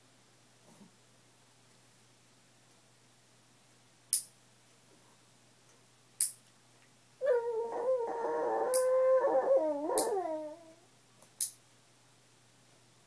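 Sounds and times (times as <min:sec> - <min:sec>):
dog howling: 0:07.2 - 0:10.9.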